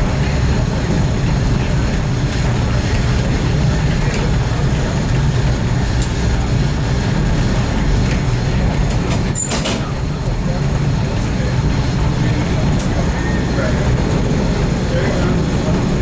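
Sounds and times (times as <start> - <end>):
faint clicks of wheels on rail joints: 0.0 - 6.5, 7.4 - 13.1
train coach rumble: 0.0 - 16.0.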